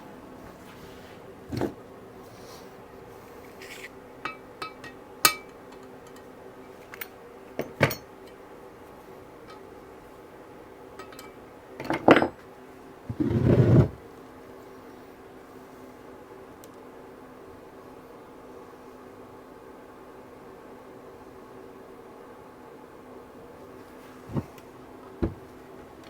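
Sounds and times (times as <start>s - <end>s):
faint steady hum: 0.0s - 26.0s
metal scrape: 3.5s - 4.0s
metal tools clinking: 3.6s - 8.4s, 9.4s - 9.8s, 11.0s - 12.4s.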